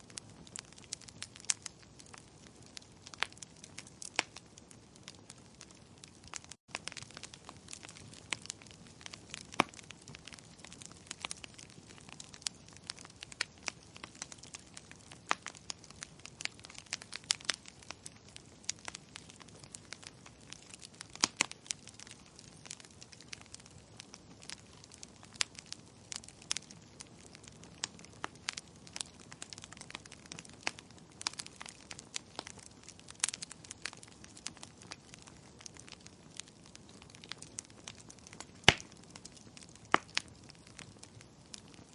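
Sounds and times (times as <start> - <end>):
campfire crackling and popping: 0.0 - 41.9.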